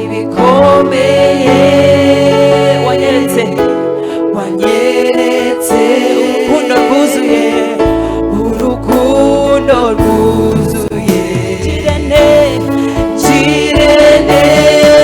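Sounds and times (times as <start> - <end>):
instrumental accompaniment: 0.0 - 15.0
person singing: 0.0 - 15.0
deep bass: 7.9 - 15.0.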